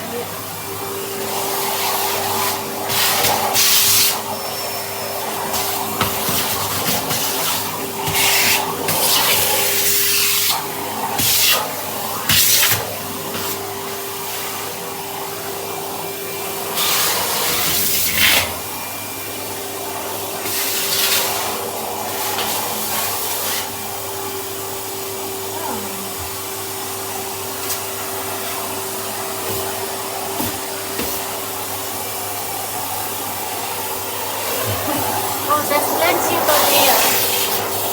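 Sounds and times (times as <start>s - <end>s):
vacuum cleaner running: 0.0s - 37.9s.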